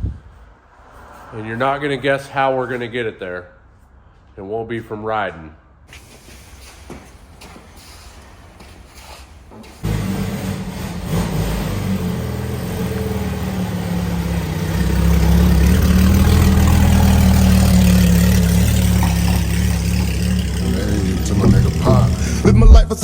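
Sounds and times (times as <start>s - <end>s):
car engine revving: 9.8s - 22.8s.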